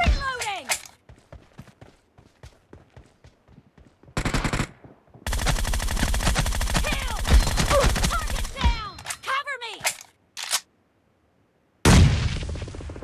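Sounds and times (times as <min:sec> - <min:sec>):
video game automatic gunfire: 0:04.2 - 0:08.6.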